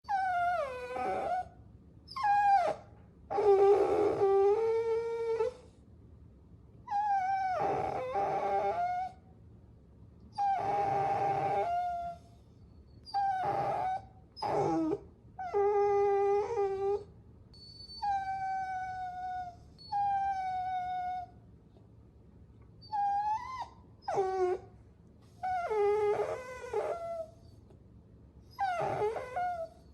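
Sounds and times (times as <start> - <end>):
puppies whining: 0.1 - 1.5, 2.1 - 5.7, 6.9 - 9.2, 10.3 - 12.3, 13.0 - 21.3, 22.8 - 24.7, 25.3 - 27.6, 28.5 - 29.9.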